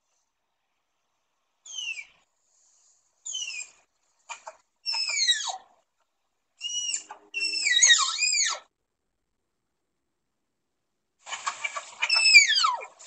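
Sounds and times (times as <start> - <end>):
animal squealing whistles: 1.7 - 2.2, 3.2 - 3.8, 4.9 - 5.6, 6.6 - 8.7, 12.0 - 12.9.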